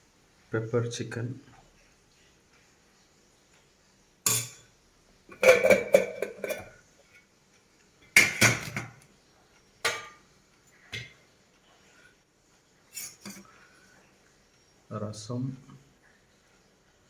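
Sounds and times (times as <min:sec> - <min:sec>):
dishes and cutlery clattering: 0:04.3 - 0:04.6, 0:05.3 - 0:06.8, 0:08.1 - 0:09.0, 0:09.8 - 0:10.2, 0:12.9 - 0:13.5.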